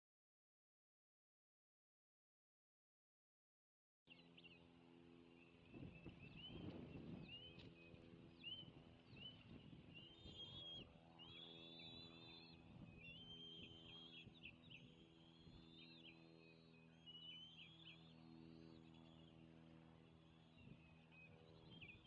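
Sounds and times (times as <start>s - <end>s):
eagles chirping and chattering: 10.0s - 19.3s.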